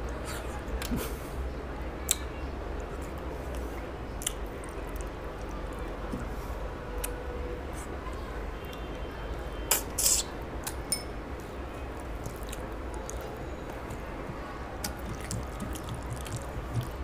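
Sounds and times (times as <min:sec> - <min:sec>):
wet chewing and lip smacks: 0:02.1 - 0:06.1, 0:12.0 - 0:14.1, 0:14.8 - 0:17.0
fingers mixing rice: 0:12.0 - 0:17.0.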